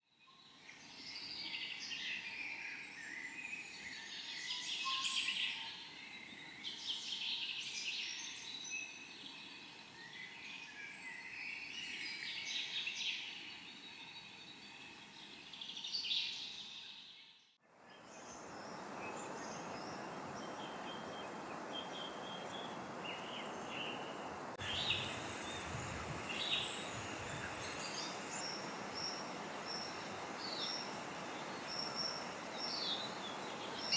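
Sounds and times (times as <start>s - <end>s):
songbirds chorus: 17.8s - 33.9s.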